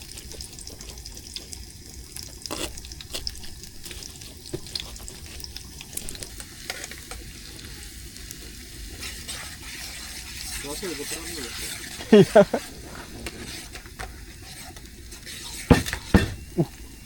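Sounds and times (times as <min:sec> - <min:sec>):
water splashing and trickling: 0:09.1 - 0:13.7.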